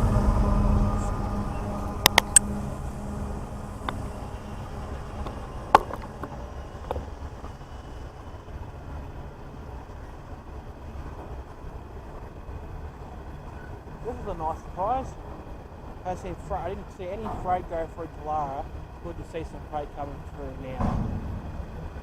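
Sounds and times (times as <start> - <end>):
train wagons rumbling: 0.0 - 22.0
wagons clanking: 9.6 - 22.0.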